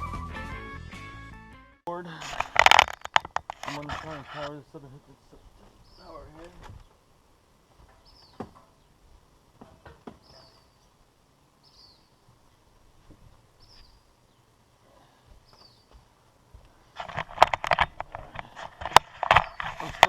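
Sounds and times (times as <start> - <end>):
small bird chirping: 2.8 - 14.8, 15.4 - 20.0
faint clicks: 15.4 - 20.0.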